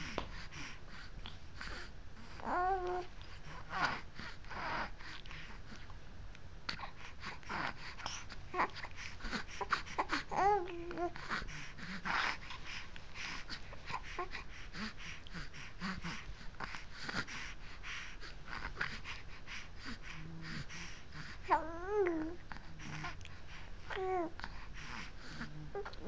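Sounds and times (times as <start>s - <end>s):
baby making breathy sounds: 6.7s - 26.0s
baby cooing: 8.5s - 11.4s, 21.5s - 22.4s.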